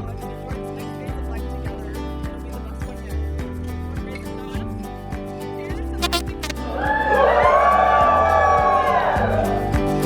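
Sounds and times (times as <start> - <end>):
sustained bass and chords: 6.0 - 6.7.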